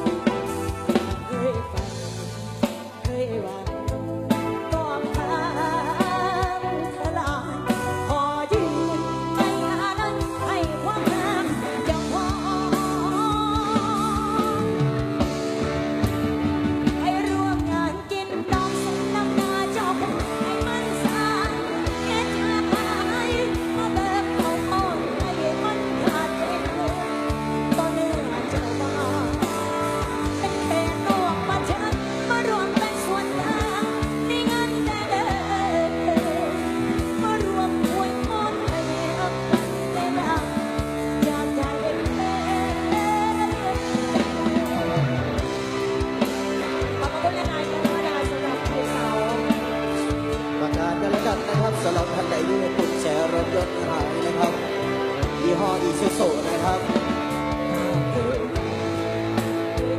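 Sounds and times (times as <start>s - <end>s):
live band music: 0.0s - 59.9s
steady drum beat: 0.0s - 59.9s.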